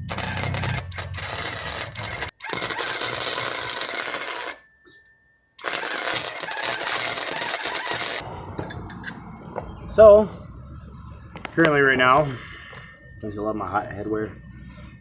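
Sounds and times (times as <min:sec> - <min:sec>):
arc welding crackling and sizzling: 0:00.0 - 0:04.6, 0:05.6 - 0:08.2.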